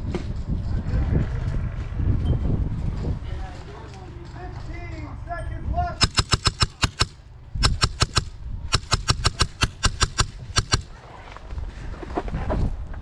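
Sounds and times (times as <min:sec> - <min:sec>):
airsoft gun firing rapid shots: 0:06.0 - 0:10.9.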